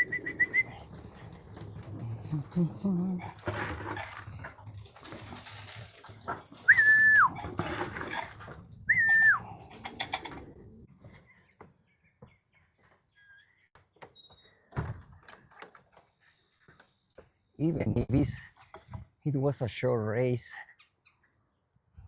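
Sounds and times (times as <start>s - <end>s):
whistled notes: 0.0s - 0.8s, 6.7s - 7.4s, 8.9s - 9.4s.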